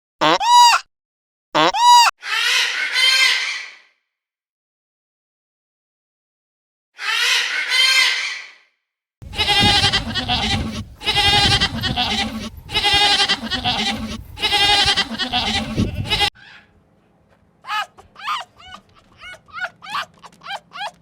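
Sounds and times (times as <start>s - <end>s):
goat bleating: 9.2s - 16.4s.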